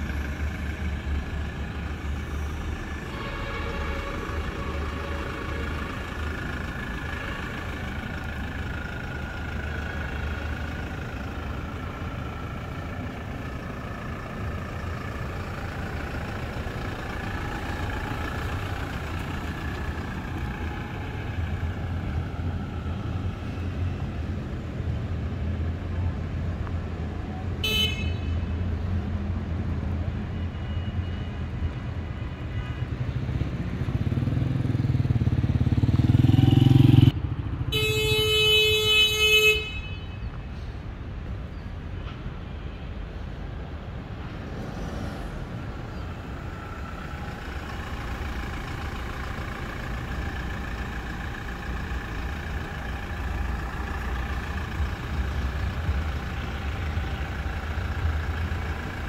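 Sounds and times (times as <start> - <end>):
car horn: 3.0 - 6.2, 27.6 - 28.6, 37.7 - 40.4.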